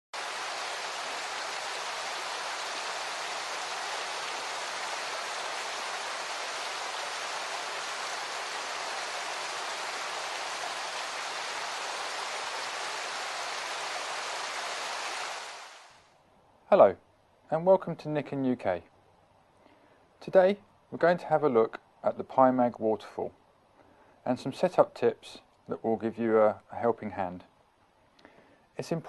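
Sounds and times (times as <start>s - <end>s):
rushing water: 0.2s - 16.1s.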